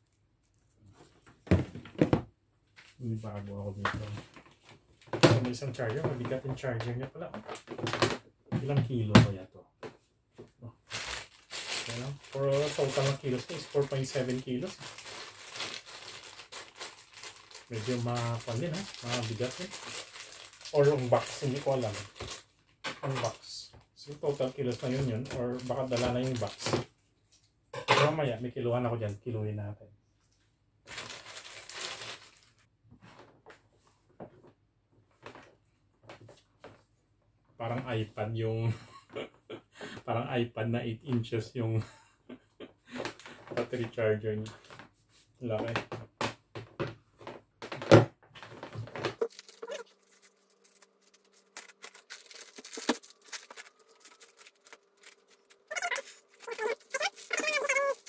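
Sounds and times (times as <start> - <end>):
packaging rustling: 10.9 - 23.4, 24.1 - 26.8, 30.9 - 32.7, 48.4 - 58.0
plastic sleeve crackling: 10.9 - 26.8, 30.9 - 32.7, 47.7 - 58.0.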